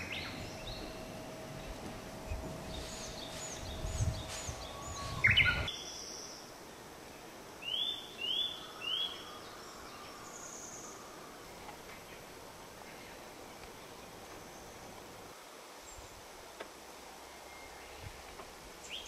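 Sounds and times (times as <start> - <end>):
low rumble: 0.0 - 5.7
songbird whistling: 0.0 - 6.2.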